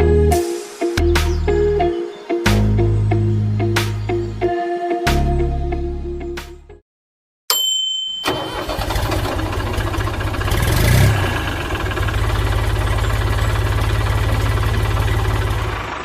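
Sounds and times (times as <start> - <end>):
engine starting click: 8.2 - 12.0
engine running with fast throb: 9.1 - 16.0.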